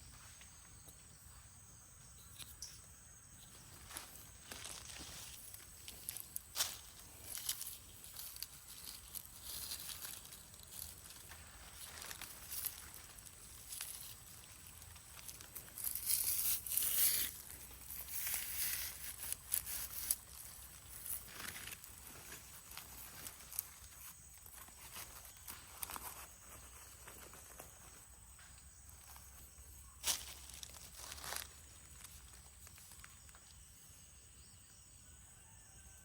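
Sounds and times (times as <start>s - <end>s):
dry rustling and crinkling material: 3.6s - 28.1s, 30.0s - 33.4s.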